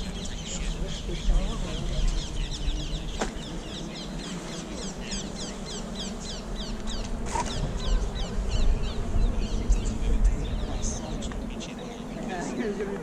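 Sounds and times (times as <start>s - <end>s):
wind rumble on microphone: 6.5s - 13.0s.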